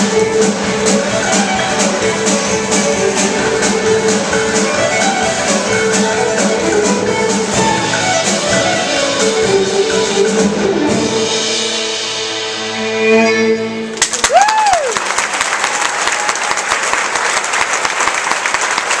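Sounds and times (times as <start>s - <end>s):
chamber orchestra with violin: 0.0s - 14.0s
audience applause: 14.0s - 19.0s
person cheering: 14.1s - 16.6s.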